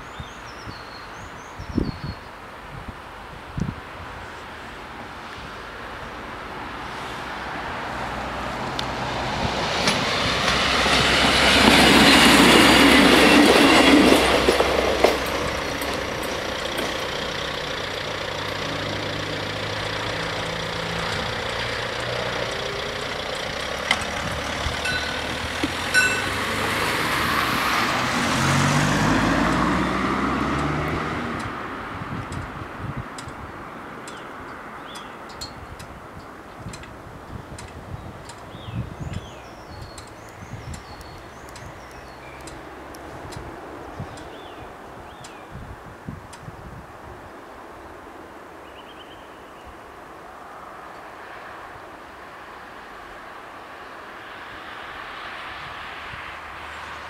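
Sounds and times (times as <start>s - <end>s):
train wheels clattering on rails: 9.4s - 27.2s
car engine pulling away: 14.4s - 32.1s.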